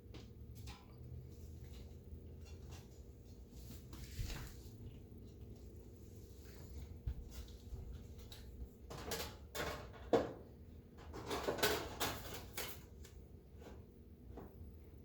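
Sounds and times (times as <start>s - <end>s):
oven parts clattering: 8.2s - 13.8s.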